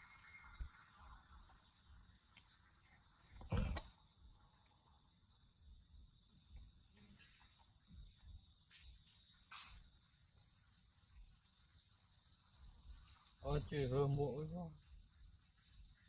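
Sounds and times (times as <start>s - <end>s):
insects droning: 0.0s - 16.0s
thump or rustle: 3.4s - 3.9s, 9.5s - 9.9s.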